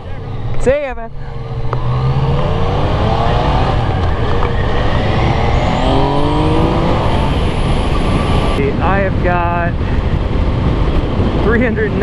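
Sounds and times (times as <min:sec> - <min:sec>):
motorcycle engine accelerating: 0:00.0 - 0:09.2.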